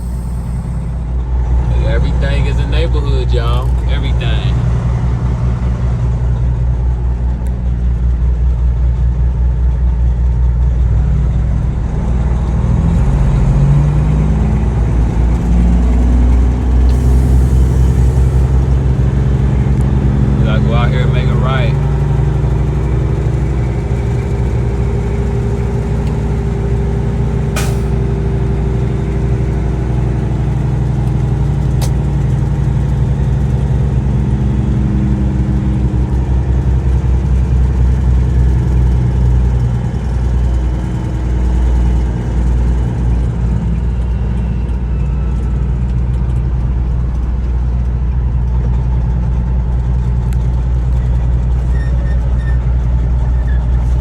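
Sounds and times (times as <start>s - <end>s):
truck diesel engine running: 0.0s - 54.0s
sharp click: 27.6s - 27.9s.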